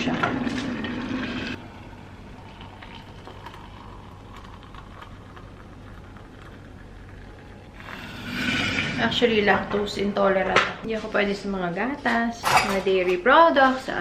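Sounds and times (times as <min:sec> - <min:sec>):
water boiling in a kettle: 0:00.0 - 0:09.5.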